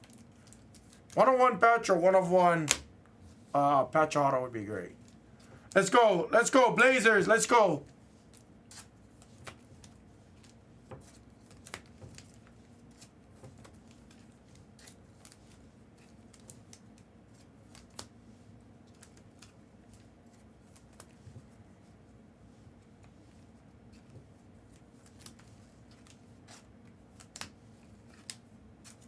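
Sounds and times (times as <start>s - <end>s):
trading cards rustling in hand: 0.0s - 3.5s.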